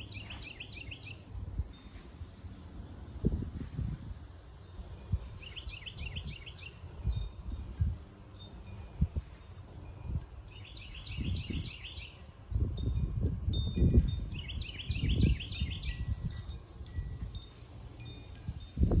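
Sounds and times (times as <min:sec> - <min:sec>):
bird twittering: 0:00.0 - 0:01.2.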